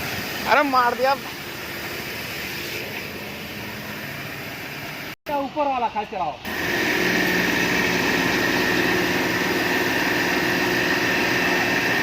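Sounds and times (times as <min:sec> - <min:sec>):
water spray hiss: 0:00.0 - 0:05.1
engine and pump drone: 0:00.0 - 0:05.2, 0:06.4 - 0:12.0.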